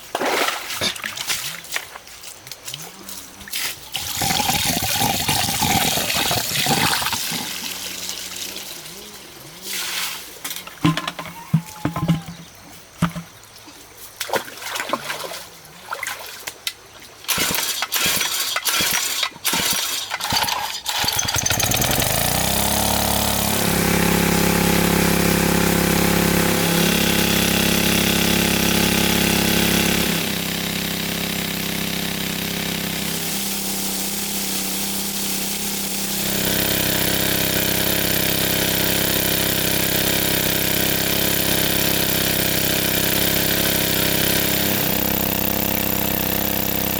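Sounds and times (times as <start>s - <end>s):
small engine running: 3.9s - 9.7s, 17.3s - 46.9s
irregular knocks and clicks: 10.8s - 13.4s.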